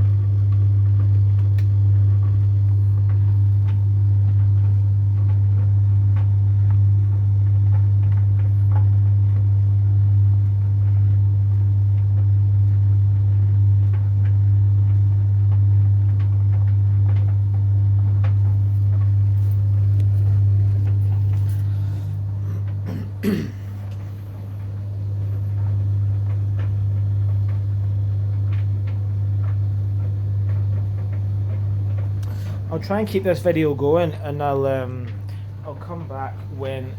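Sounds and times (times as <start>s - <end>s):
tumble dryer humming: 0.0s - 12.1s, 12.8s - 36.9s
person coughing: 22.4s - 23.8s.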